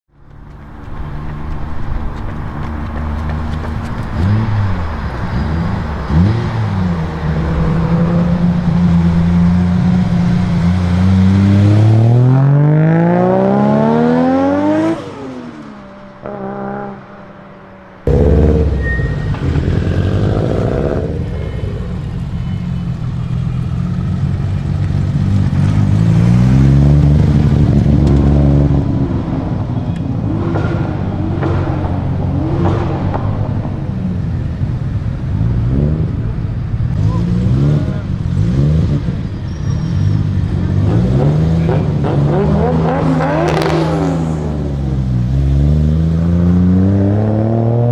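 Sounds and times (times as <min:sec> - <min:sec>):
sports car engine revving: 0:18.1 - 0:22.6, 0:40.0 - 0:47.9.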